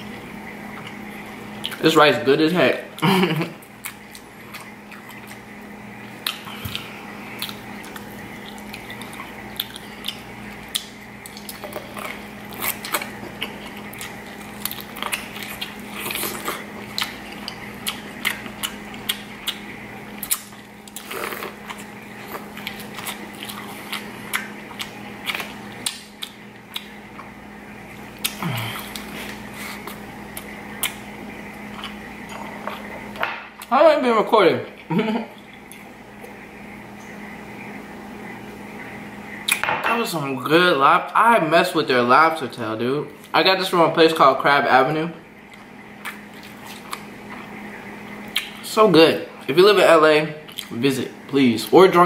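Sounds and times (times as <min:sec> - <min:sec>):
biting and chewing corn: 0:06.2 - 0:27.3.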